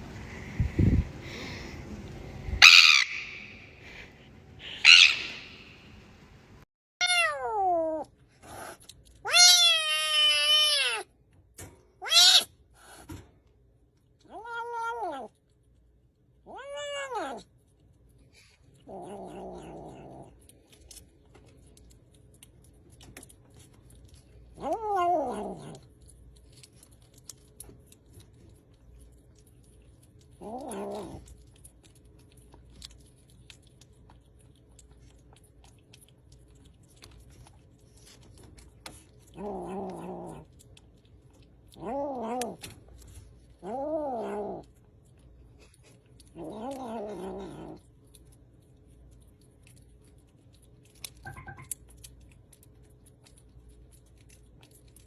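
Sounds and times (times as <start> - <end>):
cat meowing: 7.0 - 8.1, 9.2 - 11.1, 12.0 - 12.5, 14.3 - 15.3, 16.5 - 17.5.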